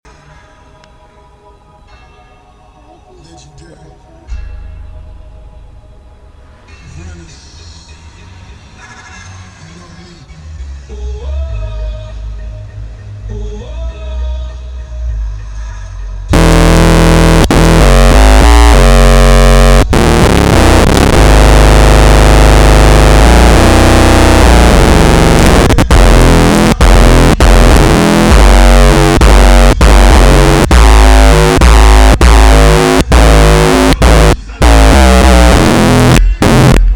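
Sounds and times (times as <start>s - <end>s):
loud electronic music with distorted bass: 16.3s - 36.9s.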